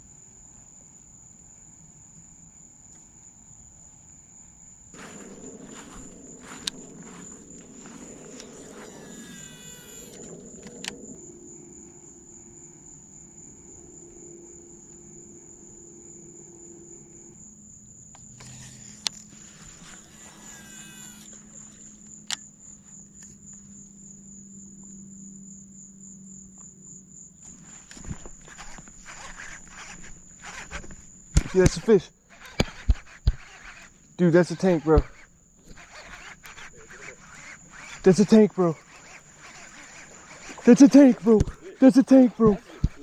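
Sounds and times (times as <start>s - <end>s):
sharp clicks: 5.0s - 11.2s, 27.9s - 43.0s
insect trilling: 5.0s - 23.0s, 27.5s - 43.0s.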